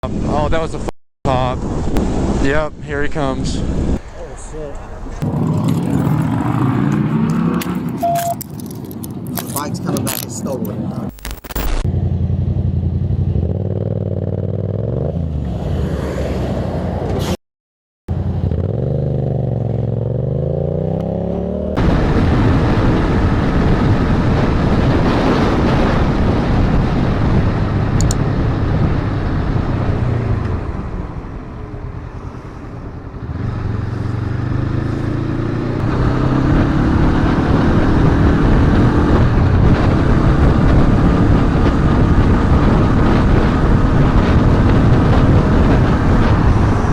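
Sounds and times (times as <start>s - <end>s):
motorcycle engines revving: 3.5s - 11.2s, 11.8s - 17.3s, 18.1s - 46.9s
wind on microphone: 21.8s - 46.9s.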